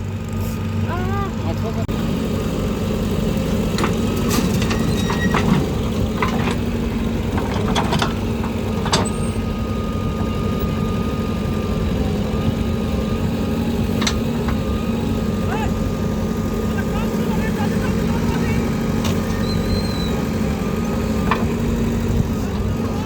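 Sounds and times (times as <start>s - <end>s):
heavy diesel machinery running: 0.0s - 23.0s
metal knocks and clanks: 3.7s - 9.3s, 20.8s - 22.7s.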